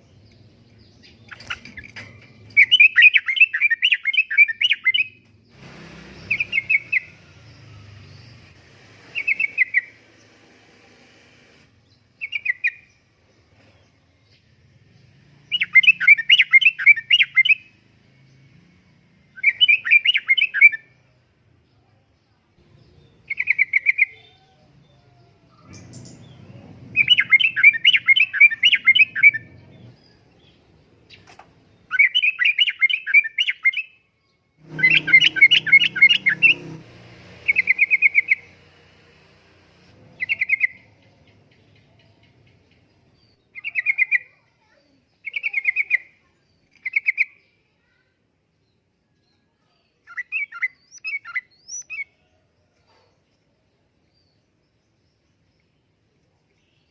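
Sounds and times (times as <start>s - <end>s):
bird singing bubbly chatter: 0.0s - 5.2s, 25.5s - 33.9s, 40.2s - 44.4s
faint low rumble: 24.5s - 27.7s.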